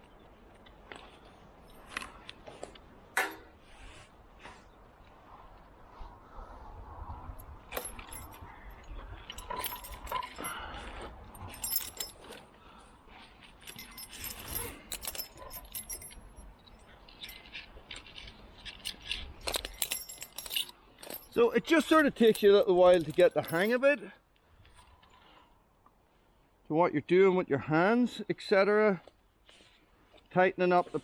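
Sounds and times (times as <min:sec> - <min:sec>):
metal climbing hardware clinking: 0:01.0 - 0:03.6, 0:07.4 - 0:24.0
wind rumble on microphone: 0:05.0 - 0:11.6.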